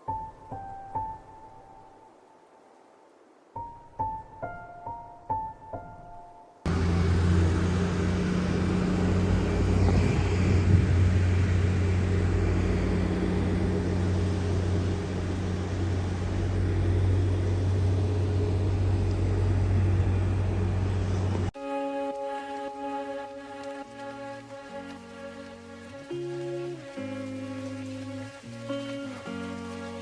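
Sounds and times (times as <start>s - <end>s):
motor vehicle rumbling: 6.7s - 21.6s, 22.3s - 30.0s
road noise: 6.7s - 30.0s.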